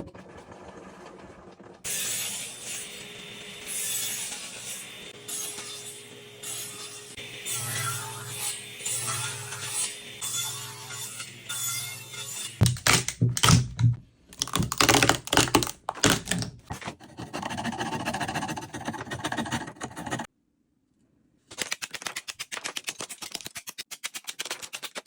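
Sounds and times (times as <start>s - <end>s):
steady scraping: 16.7s - 20.3s
fast run of clicks: 21.5s - 25.0s.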